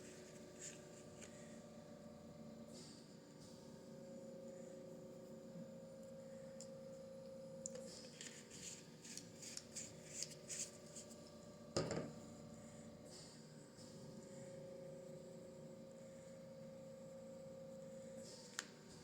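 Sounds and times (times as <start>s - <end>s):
faint hum: 3.9s - 13.1s, 14.1s - 19.0s
knock: 11.8s - 12.1s.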